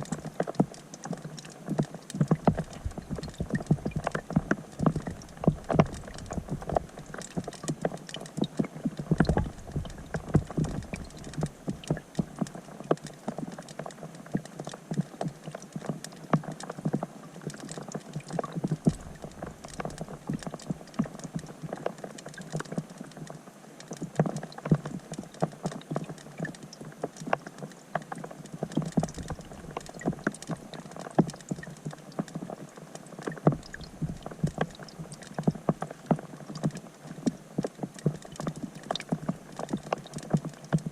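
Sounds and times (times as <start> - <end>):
rain on water heard underwater: 0.0 - 40.9.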